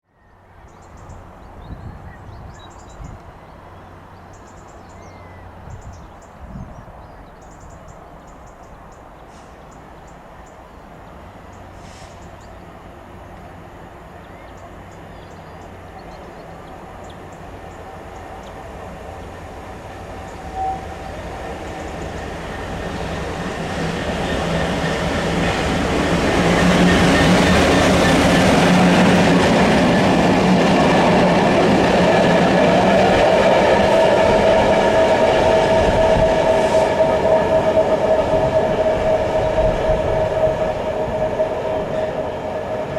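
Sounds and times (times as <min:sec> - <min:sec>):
diesel locomotive engine: 0:00.2 - 0:42.9
train wheels rolling: 0:16.5 - 0:42.9.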